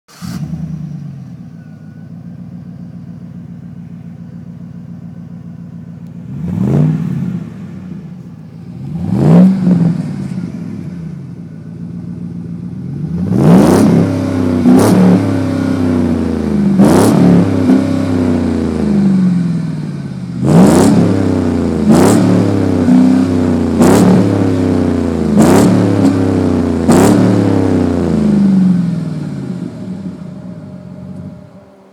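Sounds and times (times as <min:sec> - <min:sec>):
pickup truck engine revving: 0:00.1 - 0:31.9.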